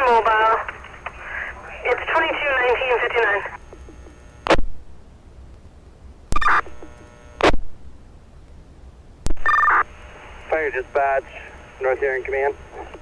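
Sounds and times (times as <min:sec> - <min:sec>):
radio static bursts: 0:00.0 - 0:04.8, 0:06.3 - 0:07.7, 0:09.3 - 0:13.0
low steady hum: 0:00.0 - 0:13.0
two-tone data chirp: 0:06.3 - 0:06.8, 0:09.4 - 0:09.9.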